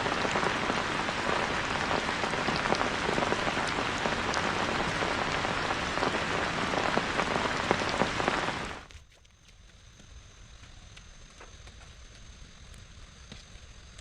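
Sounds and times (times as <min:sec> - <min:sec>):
heavy rain falling: 0:00.0 - 0:08.9.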